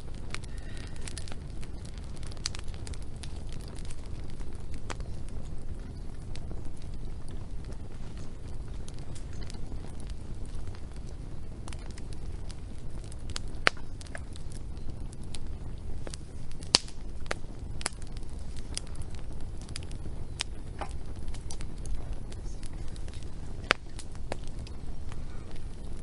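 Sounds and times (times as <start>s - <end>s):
crackles and pops of burning wood: 0.0s - 26.0s
wood fire burning: 0.0s - 26.0s.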